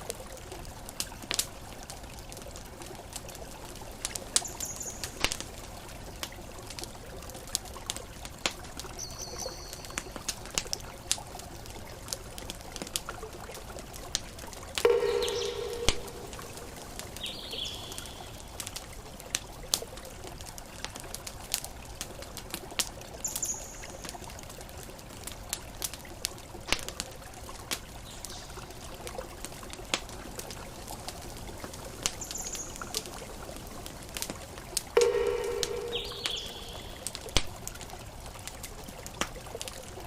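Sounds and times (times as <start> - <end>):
campfire crackling and popping: 0.0 - 40.0
bird chirps: 14.9 - 18.4, 35.0 - 37.2
ocean waves: 14.9 - 18.4.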